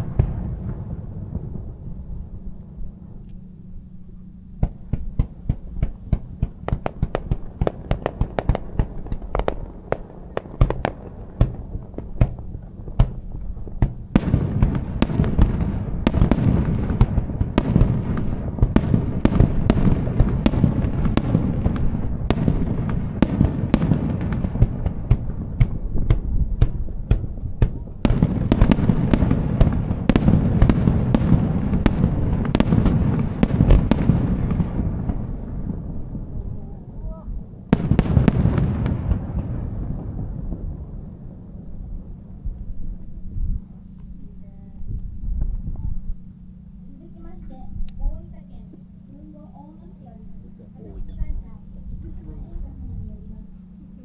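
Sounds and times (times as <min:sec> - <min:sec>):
fireworks bursting: 0:00.0 - 0:02.4, 0:04.6 - 0:44.4.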